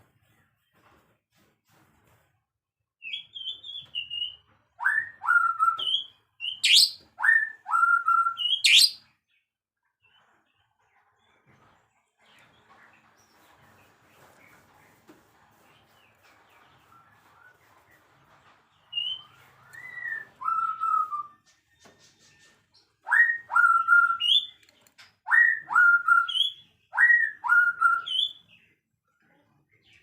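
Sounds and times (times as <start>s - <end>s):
songbird singing whistled phrases: 3.1s - 9.0s, 18.9s - 21.4s, 23.0s - 24.6s, 25.3s - 28.5s.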